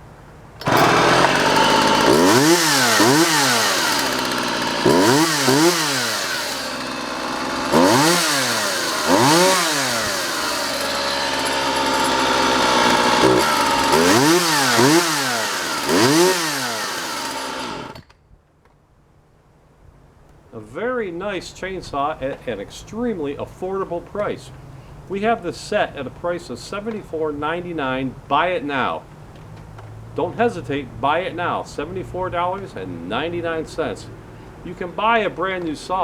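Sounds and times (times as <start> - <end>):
chainsaw revving: 0.6 - 18.1.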